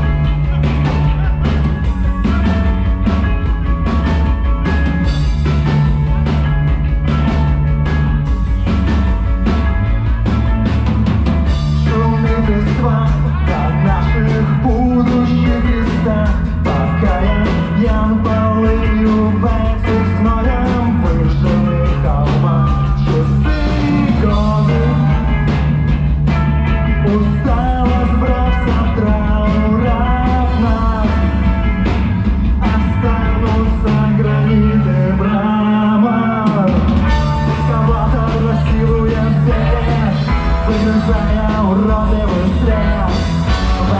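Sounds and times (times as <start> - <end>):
drum beat: 0.0 - 34.7, 36.5 - 43.9
bass line: 0.0 - 43.9
person singing: 11.7 - 25.7, 26.9 - 31.6, 32.6 - 43.9.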